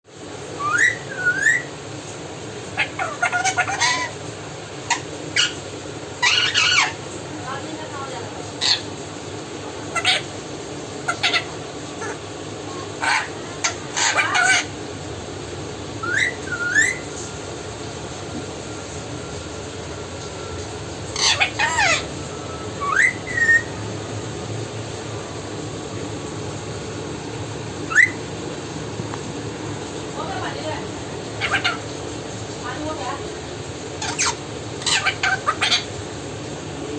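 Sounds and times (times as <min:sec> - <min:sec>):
parrot rising whistles: 0:00.6 - 0:01.7, 0:16.0 - 0:17.1, 0:21.2 - 0:23.8, 0:27.9 - 0:28.2
parrot chattering calls: 0:00.6 - 0:01.8, 0:02.6 - 0:07.2, 0:08.6 - 0:09.0, 0:09.8 - 0:14.9, 0:16.0 - 0:17.2, 0:21.1 - 0:23.8, 0:27.8 - 0:28.3, 0:30.3 - 0:32.8, 0:33.8 - 0:36.1.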